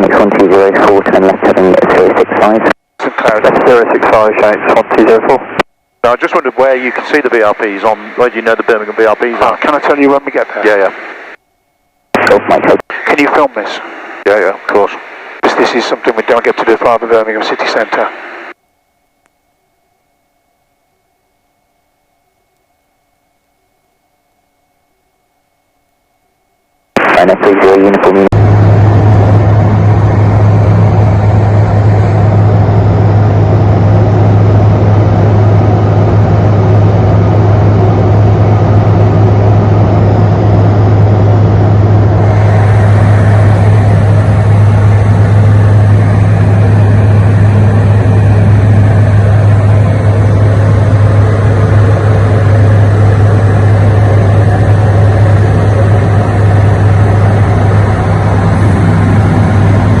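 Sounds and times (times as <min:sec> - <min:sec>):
light aircraft engine drone: 0:00.0 - 0:11.4, 0:27.2 - 1:00.0.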